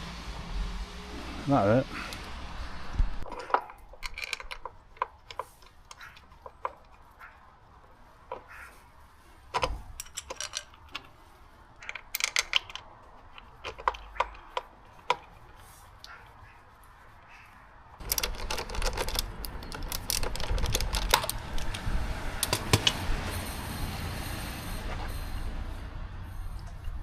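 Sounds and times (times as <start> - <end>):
metal parts and tools clinking: 3.2 - 7.1, 9.4 - 16.1, 18.0 - 23.0.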